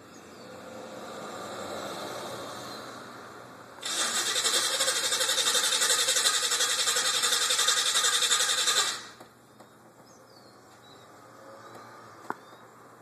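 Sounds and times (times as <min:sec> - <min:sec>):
starter motor cranking engine: 0:03.8 - 0:09.2.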